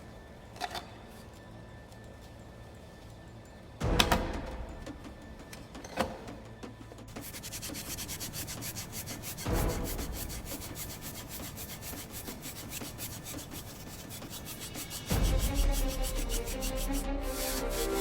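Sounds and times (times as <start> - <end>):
rhythmic rubbing strokes: 7.0 - 18.0.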